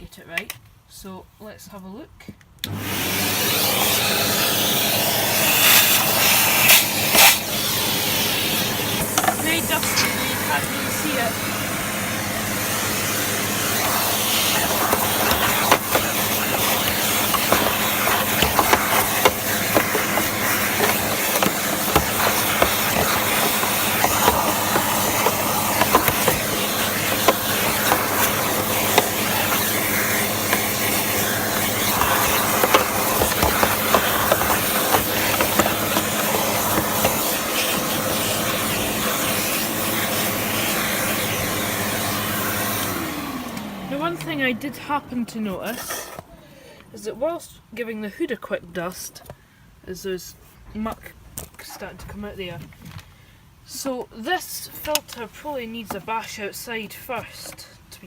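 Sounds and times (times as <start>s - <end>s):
vacuum cleaner running: 2.6s - 46.9s
clicks and knocks on plastic: 14.3s - 37.4s.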